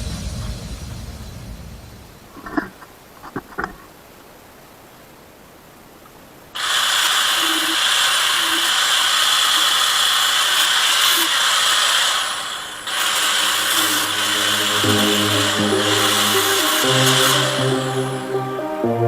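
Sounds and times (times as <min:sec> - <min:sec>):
power tool working: 0:06.6 - 0:18.4.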